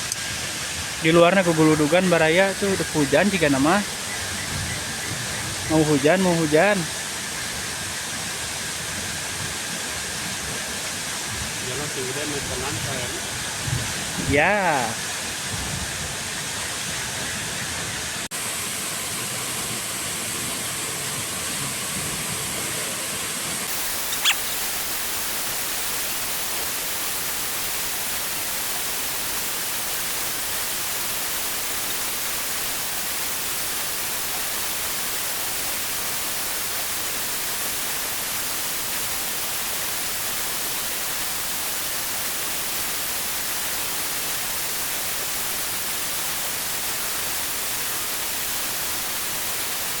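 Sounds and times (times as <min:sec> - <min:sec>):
heavy rain falling: 0:23.7 - 0:50.0.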